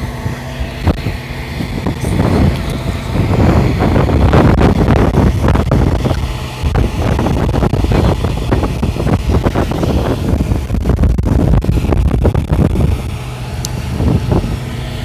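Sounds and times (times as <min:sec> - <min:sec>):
wind on microphone: 0:00.0 - 0:15.0
fire crackling and popping: 0:00.8 - 0:13.8.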